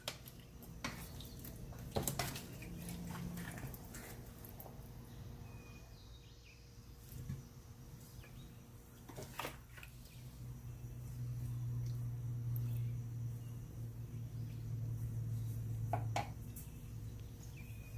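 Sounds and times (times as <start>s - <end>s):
low steady hum: 0.0s - 17.9s.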